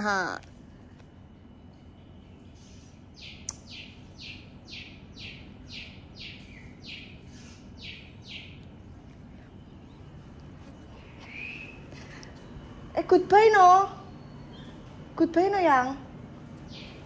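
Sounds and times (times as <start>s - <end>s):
bird calling harsh notes: 11.0s - 12.2s.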